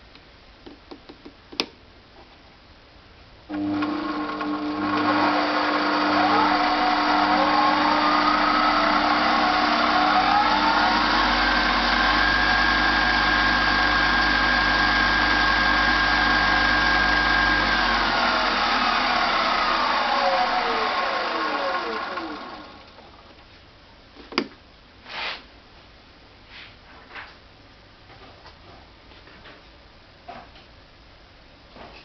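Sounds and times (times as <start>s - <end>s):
lathe motor whine: 3.5s - 23.2s.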